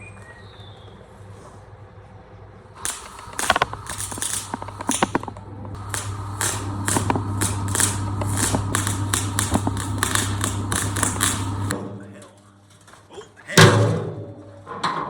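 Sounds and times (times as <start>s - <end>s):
welder transformer hum: 2.7s - 12.8s
welding arc crackling: 2.8s - 11.8s.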